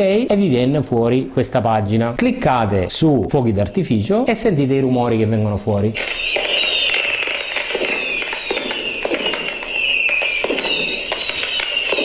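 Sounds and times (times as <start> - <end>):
falling rocket whistles: 6.0 - 12.0
firework pops bangs and crackling: 6.0 - 12.0.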